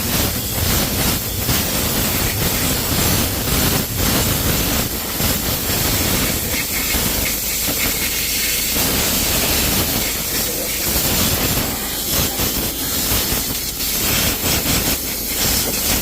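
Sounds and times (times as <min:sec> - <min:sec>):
cleaning spray jet hissing: 0:00.0 - 0:16.0.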